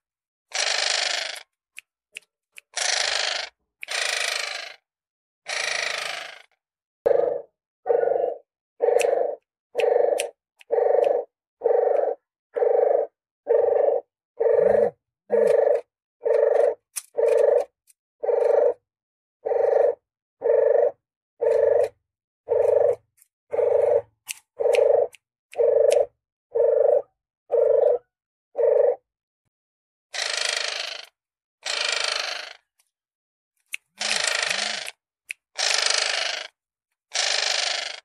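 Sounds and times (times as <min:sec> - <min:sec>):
dove lure call cooing: 0:07.1 - 0:18.8, 0:19.4 - 0:21.9, 0:22.5 - 0:28.0, 0:28.6 - 0:29.0.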